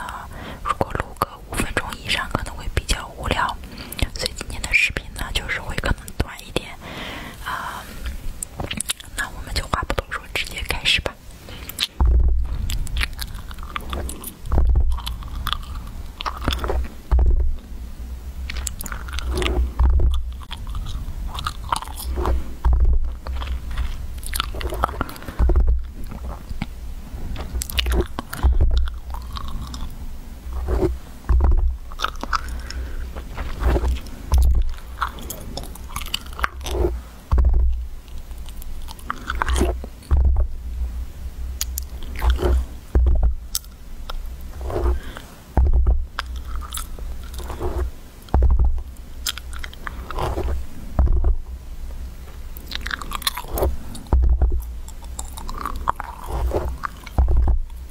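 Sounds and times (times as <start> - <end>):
microphone handling thumps: 11.9 - 15.8, 16.4 - 29.8, 30.4 - 38.4, 39.4 - 43.6, 44.2 - 49.0, 49.6 - 51.6, 52.2 - 57.9
fingers scratching a microphone: 11.9 - 17.6, 18.5 - 40.6, 41.6 - 43.5, 44.1 - 51.5, 52.7 - 57.9.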